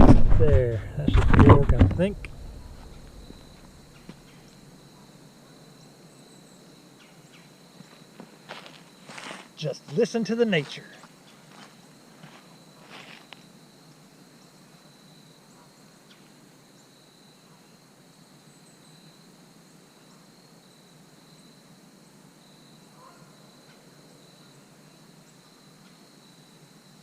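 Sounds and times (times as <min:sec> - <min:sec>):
insect trilling: 0:00.9 - 0:04.6.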